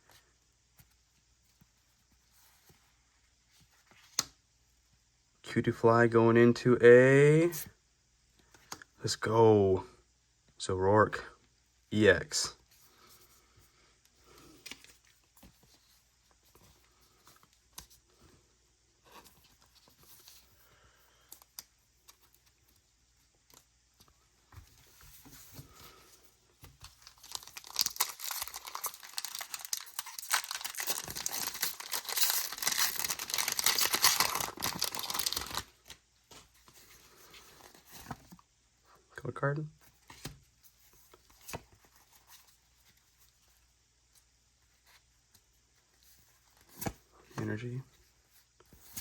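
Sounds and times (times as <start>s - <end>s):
foil wrapper tearing and crinkling: 27.0s - 35.8s.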